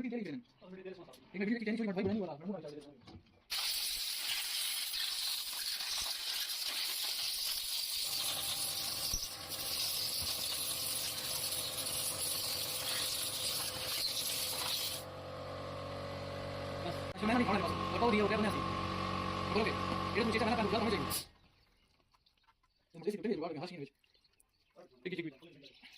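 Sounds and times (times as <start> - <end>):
loud hiss of escaping air: 3.5 - 15.0
steady machine hum: 15.0 - 21.2.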